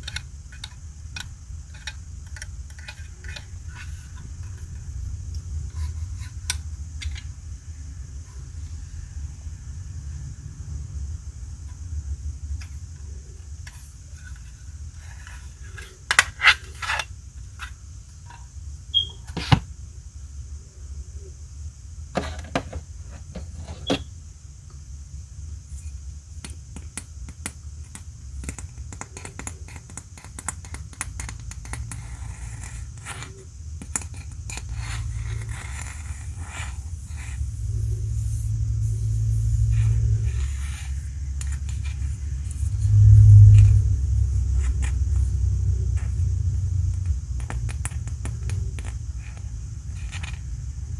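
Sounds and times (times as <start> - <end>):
steady low rumble: 37.0 - 50.9.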